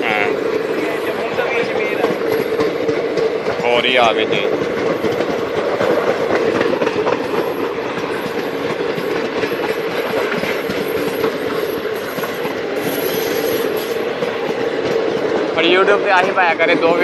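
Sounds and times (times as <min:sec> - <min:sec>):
train wheels clattering: 0:00.0 - 0:17.0.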